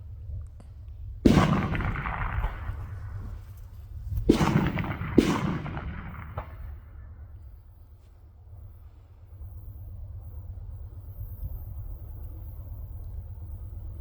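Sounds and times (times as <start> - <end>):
steady low rumble: 0.0 - 14.0
rifle shots echoing: 1.2 - 7.4.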